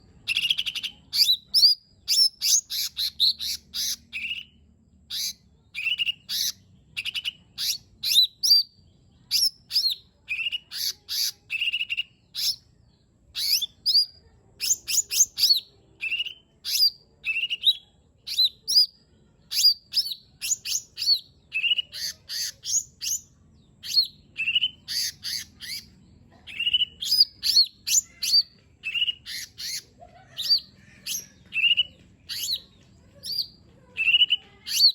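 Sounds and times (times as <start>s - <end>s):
bird singing sharp whistled notes: 0.3s - 8.7s, 14.6s - 18.8s, 19.6s - 23.2s, 23.8s - 25.9s, 26.6s - 29.8s.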